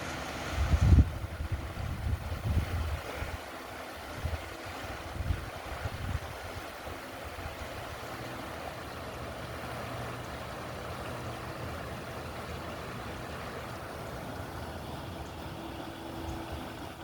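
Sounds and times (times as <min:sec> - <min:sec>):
low steady hum: 0:00.0 - 0:17.0
river water running: 0:00.0 - 0:17.0.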